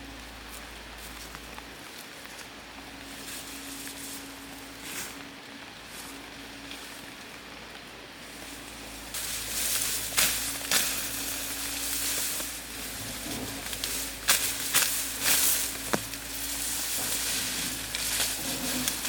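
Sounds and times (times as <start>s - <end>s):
oil popping and crackling: 8.8s - 19.0s.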